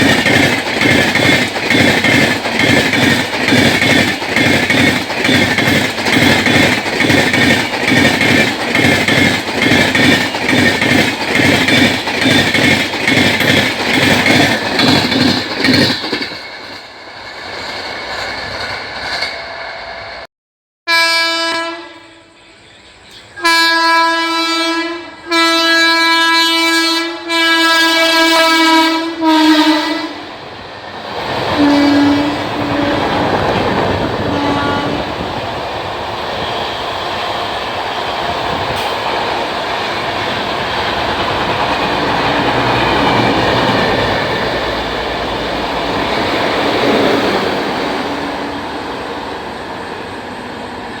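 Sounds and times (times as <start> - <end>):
wheels clattering over rails: 0.0 - 16.8
train passing at speed: 0.0 - 20.3, 20.9 - 51.0
locomotive horn blasts: 20.9 - 22.5, 23.4 - 30.2, 31.6 - 33.3, 34.2 - 35.2.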